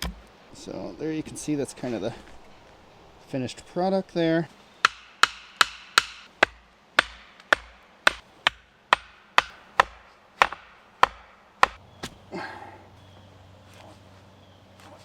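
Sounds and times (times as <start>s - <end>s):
hatchet striking wood: 0.0s - 0.2s, 4.8s - 12.2s.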